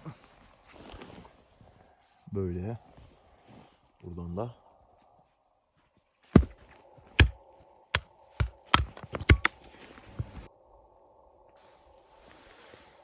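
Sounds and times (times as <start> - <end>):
wood knocking against wood: 8.4 - 10.5.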